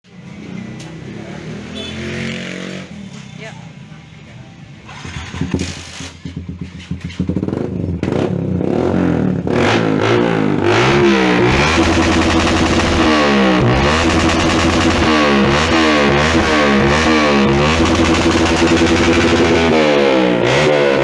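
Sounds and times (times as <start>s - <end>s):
motorcycle engine revving: 4.8s - 21.0s.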